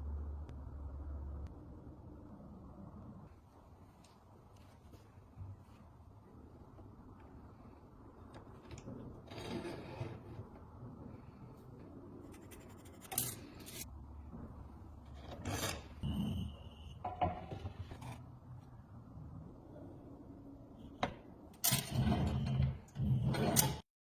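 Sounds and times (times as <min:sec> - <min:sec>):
scraping on a hard surface: 0:08.9 - 0:10.6.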